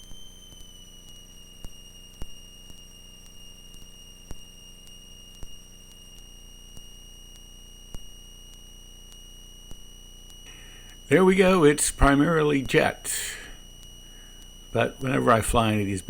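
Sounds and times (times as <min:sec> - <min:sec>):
high whine: 0:00.0 - 0:16.0
aircraft engine droning: 0:10.5 - 0:16.0.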